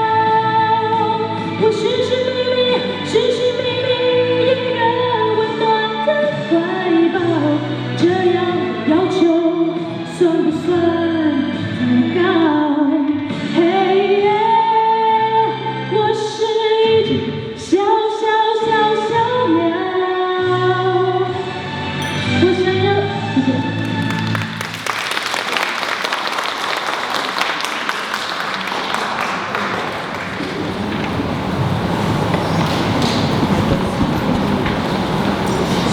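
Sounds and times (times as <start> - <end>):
backing track music: 21.8 - 25.5.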